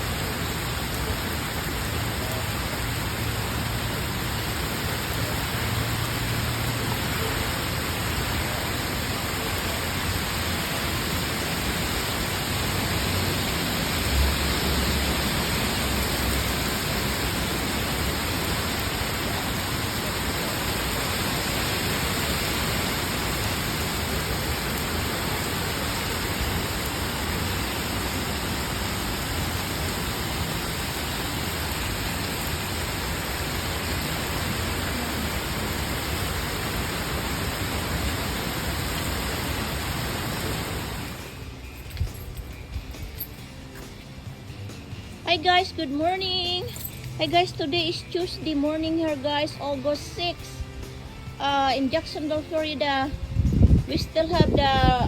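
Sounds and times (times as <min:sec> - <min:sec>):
heavy rain hissing: 0:00.0 - 0:41.8.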